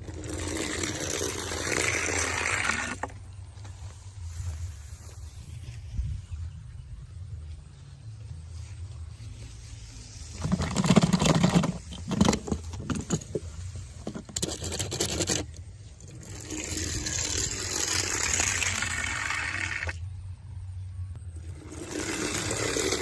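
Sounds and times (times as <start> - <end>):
plastic toy cars clattering: 10.3 - 19.0.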